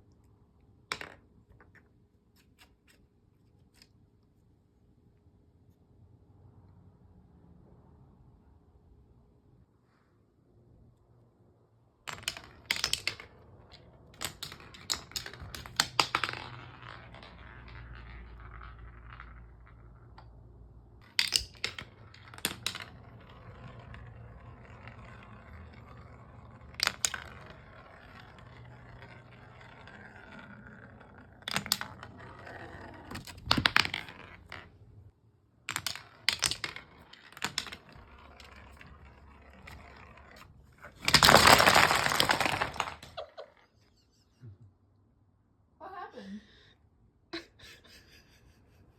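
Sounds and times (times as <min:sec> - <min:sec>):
marbles clacking on wood: 0:00.9 - 0:03.0, 0:12.1 - 0:35.0, 0:35.6 - 0:43.6
marbles rolling on wooden run: 0:12.1 - 0:35.0, 0:35.6 - 0:43.6.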